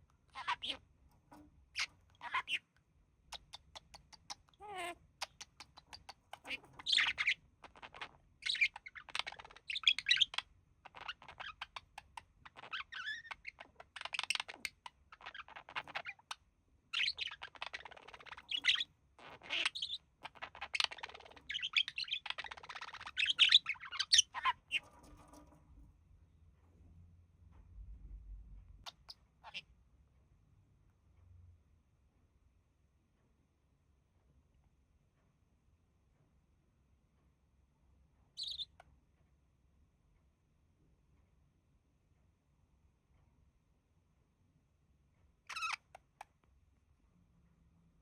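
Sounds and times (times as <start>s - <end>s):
budgerigar warbling and chattering: 0.3s - 2.7s, 3.3s - 25.4s, 28.8s - 29.7s, 38.4s - 38.8s, 45.5s - 46.2s.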